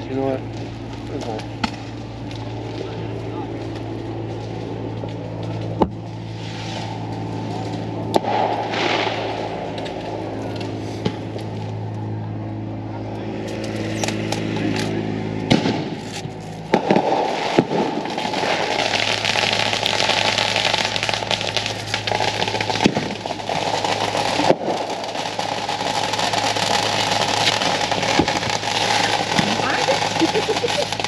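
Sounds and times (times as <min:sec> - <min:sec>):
fireworks crackling and banging: 0:00.0 - 0:11.9, 0:13.4 - 0:31.0
fireworks popping: 0:05.4 - 0:11.6, 0:15.5 - 0:31.0.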